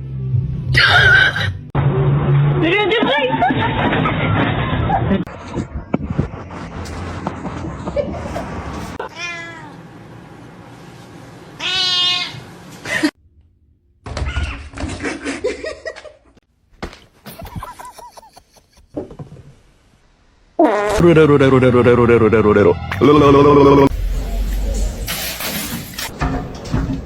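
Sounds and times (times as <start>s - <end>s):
cats meowing: 9.0s - 9.8s.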